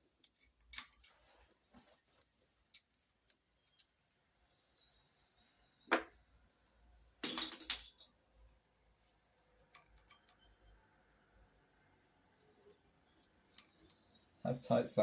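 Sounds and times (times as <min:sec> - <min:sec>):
metal tools clinking: 0:07.2 - 0:08.2.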